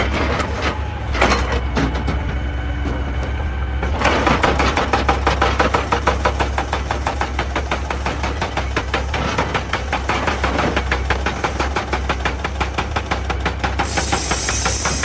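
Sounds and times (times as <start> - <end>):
diesel engine running: 0.0 - 15.0
hydraulic rock breaker hammering: 0.0 - 15.0.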